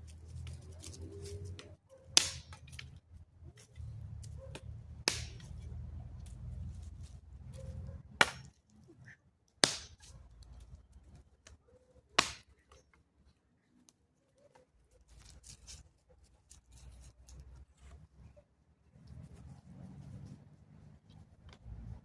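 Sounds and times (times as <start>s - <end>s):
sharp cracks: 2.2s - 2.8s, 5.1s - 5.6s, 9.6s - 10.1s, 12.2s - 12.5s.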